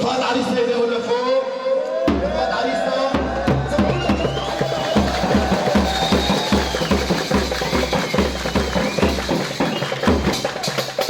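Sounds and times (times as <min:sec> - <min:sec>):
steady drum beat: 0:02.1 - 0:11.0.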